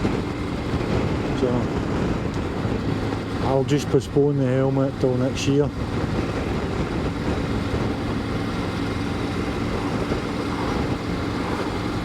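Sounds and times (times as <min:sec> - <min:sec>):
motorcycle engine cruising: 0:00.0 - 0:12.0
wind rush: 0:00.0 - 0:12.0.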